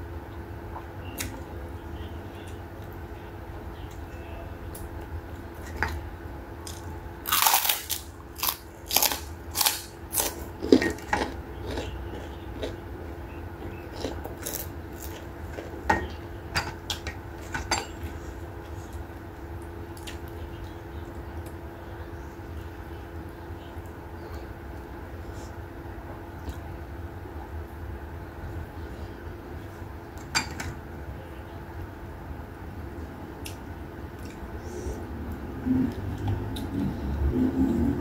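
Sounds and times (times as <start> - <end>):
person chewing crunchy food: 6.6 - 19.1.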